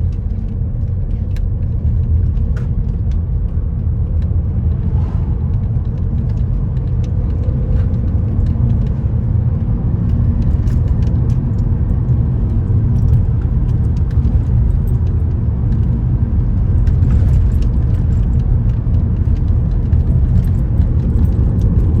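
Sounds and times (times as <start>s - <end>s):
car rumbling in motion: 0.0s - 22.0s
faint clicks and rattles: 5.5s - 22.0s.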